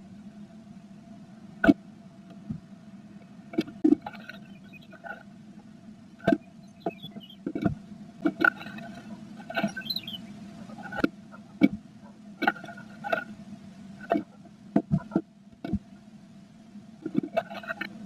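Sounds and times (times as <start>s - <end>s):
steady low hum: 0.0s - 18.0s
faint high chirps: 4.2s - 5.0s, 6.3s - 7.5s, 9.6s - 10.4s.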